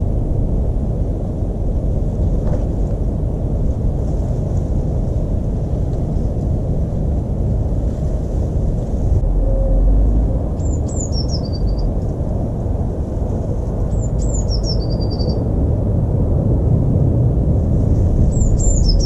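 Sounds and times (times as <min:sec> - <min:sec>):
low outdoor rumble: 0:00.0 - 0:19.0
small birds chirping: 0:10.6 - 0:11.9, 0:13.9 - 0:15.4, 0:18.3 - 0:19.0.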